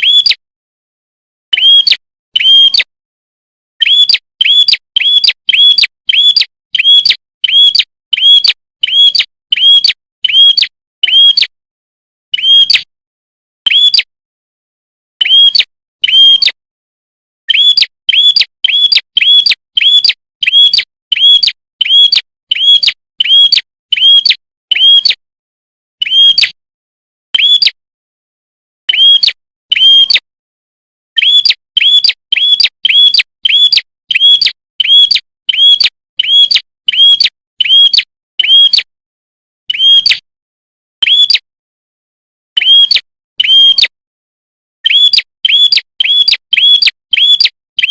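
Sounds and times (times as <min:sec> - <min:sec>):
bird chirping high and sharp: 0:00.0 - 0:00.4, 0:01.5 - 0:02.9, 0:03.8 - 0:11.5, 0:12.3 - 0:12.9, 0:13.6 - 0:14.1, 0:15.2 - 0:16.6, 0:17.4 - 0:25.2, 0:26.0 - 0:26.6, 0:27.3 - 0:27.8, 0:28.9 - 0:30.3, 0:31.2 - 0:38.9, 0:39.7 - 0:40.3, 0:41.0 - 0:41.5, 0:42.6 - 0:44.0, 0:44.8 - 0:47.9.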